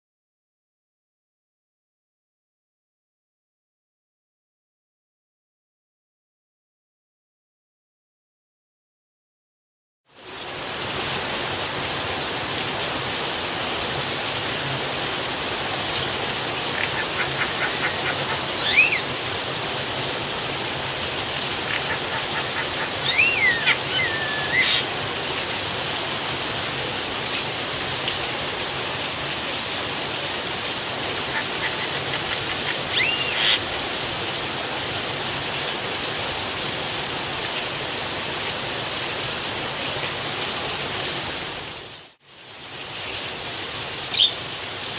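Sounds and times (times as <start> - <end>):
rain hissing: 10.2 - 44.9
bird calling clicks and whistles: 16.7 - 19.1, 21.6 - 24.9, 31.3 - 33.7, 44.1 - 44.4.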